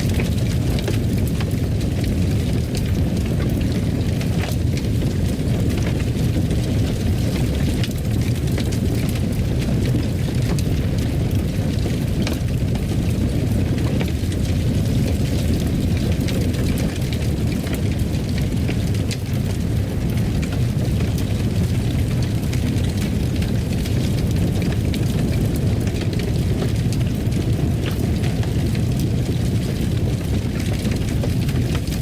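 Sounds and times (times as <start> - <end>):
fire crackling and popping: 0.0 - 32.0
fireplace fire rumbling: 0.0 - 32.0.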